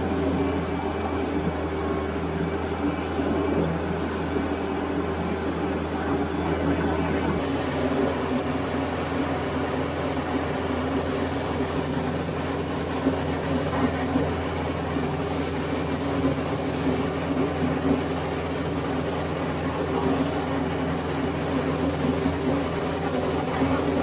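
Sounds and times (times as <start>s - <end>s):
tractor diesel engine running: 0.0s - 24.0s
rotary tiller churning soil: 6.5s - 24.0s.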